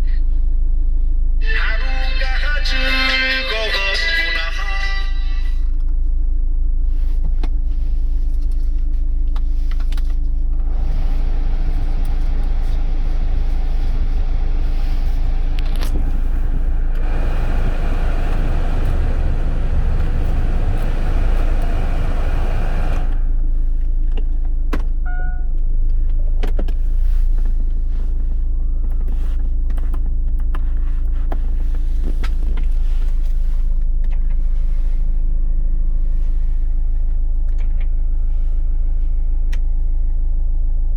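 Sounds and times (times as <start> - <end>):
car engine idling: 9.5 - 25.0
rushing whir: 10.6 - 23.5.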